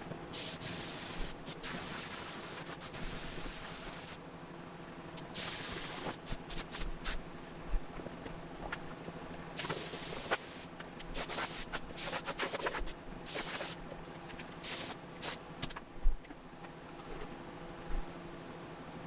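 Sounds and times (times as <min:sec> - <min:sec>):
steady low hum: 0:00.0 - 0:08.5, 0:09.2 - 0:16.9
paint spray gun hissing: 0:00.4 - 0:04.2, 0:05.2 - 0:07.2, 0:09.6 - 0:13.8, 0:14.6 - 0:15.8.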